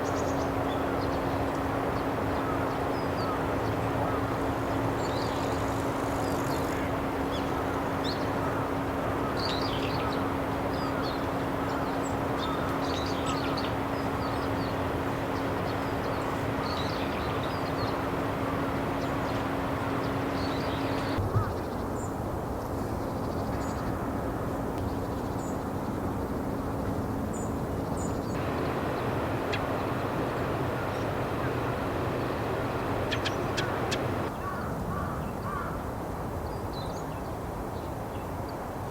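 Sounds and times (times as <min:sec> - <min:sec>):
outdoor background noise: 0:00.0 - 0:38.9
thrush calls: 0:02.3 - 0:21.5, 0:28.4 - 0:35.8
high bird chirps: 0:28.4 - 0:34.3.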